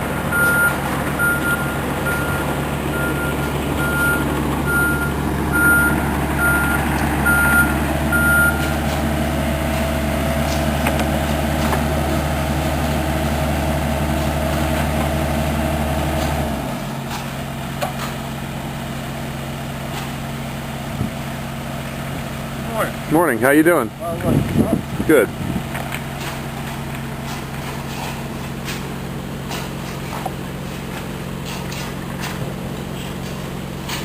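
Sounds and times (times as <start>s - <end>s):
diesel engine running: 0.0s - 34.0s
reversing alarm beeping: 0.3s - 8.9s.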